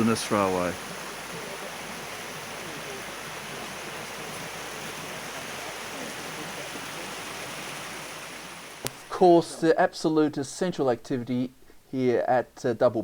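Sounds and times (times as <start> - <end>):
river water rushing: 0.0 - 9.2.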